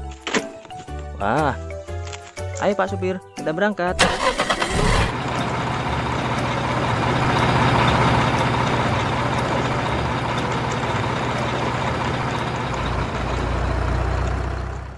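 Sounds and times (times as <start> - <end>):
truck engine running: 4.0 - 14.9.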